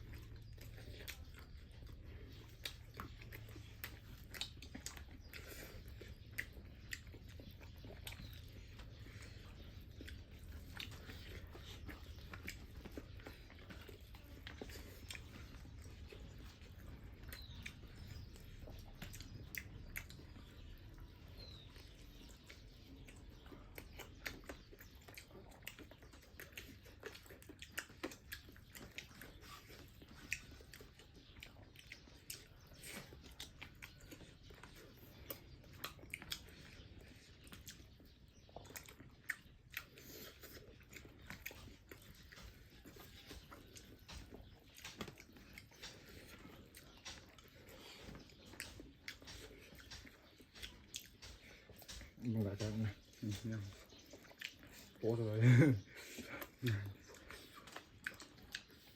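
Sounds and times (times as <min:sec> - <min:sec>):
chewing and crunching food: 0:00.0 - 0:58.9.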